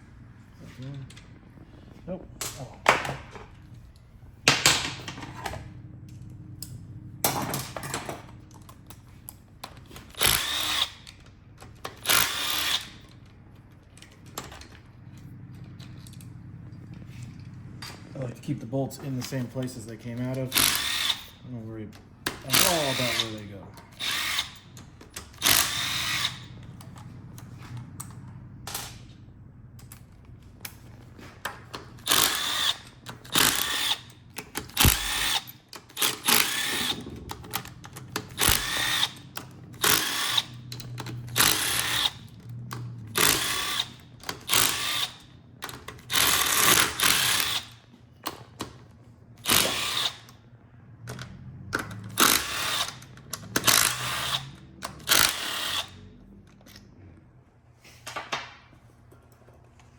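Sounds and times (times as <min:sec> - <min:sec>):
power drill spinning bolts: 0:07.3 - 0:16.3, 0:19.0 - 0:29.1, 0:30.6 - 0:48.8, 0:49.4 - 0:50.4, 0:51.2 - 0:56.8.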